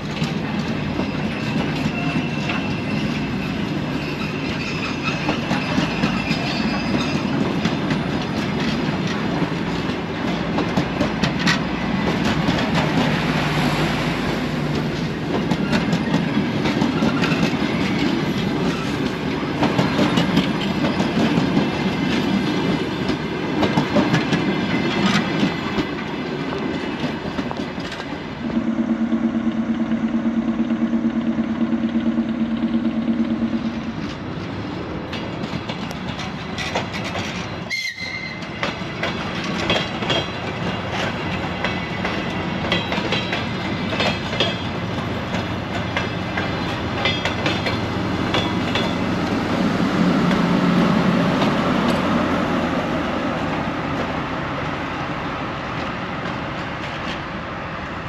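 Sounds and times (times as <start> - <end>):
train wheels clattering: 0.0 - 57.4
diesel train rumbling past: 0.0 - 58.0
two-tone train horn: 28.4 - 33.7, 37.7 - 38.4.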